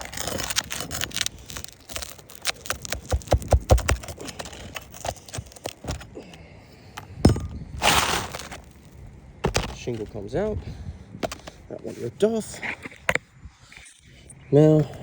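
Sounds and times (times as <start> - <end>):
shingle snapping: 0.0 - 6.1
scraping tear of shingle: 0.0 - 6.3, 7.7 - 10.1
shingles cracking as nails pull: 0.0 - 6.4, 7.8 - 10.2.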